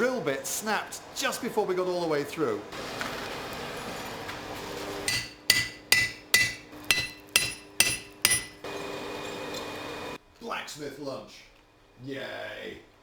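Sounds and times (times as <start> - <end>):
hammer striking steel: 5.1 - 8.6.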